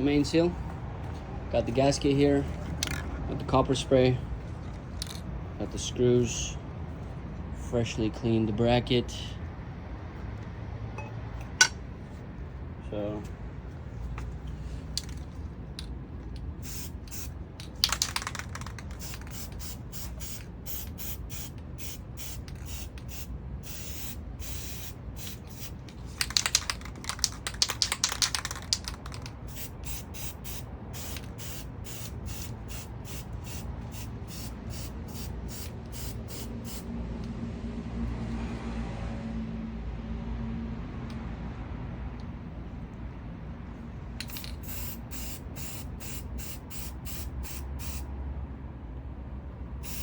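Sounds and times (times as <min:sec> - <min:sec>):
aerosol spray can hissing: 0:16.6 - 0:26.7, 0:27.3 - 0:36.8, 0:44.2 - 0:48.1.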